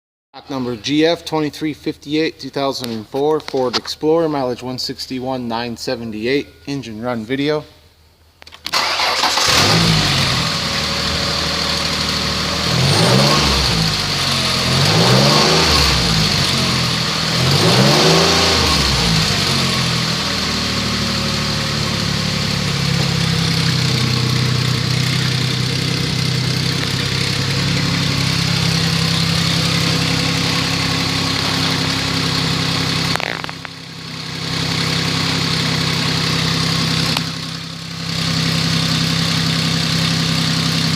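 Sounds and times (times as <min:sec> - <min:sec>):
car engine starting and revving: 0:08.7 - 0:40.9
car engine idling: 0:08.8 - 0:40.9.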